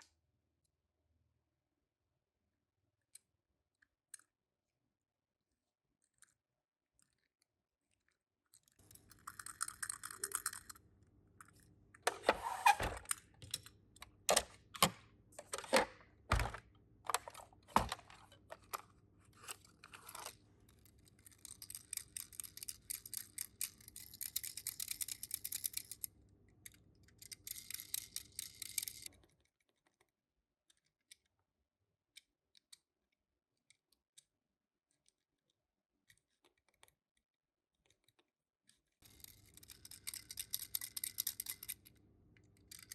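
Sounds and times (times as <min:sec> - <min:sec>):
toy cars clicking and knocking: 0:07.0 - 0:10.8, 0:11.4 - 0:30.1, 0:32.2 - 0:42.9
packaging rustling and scraping: 0:15.4 - 0:20.4.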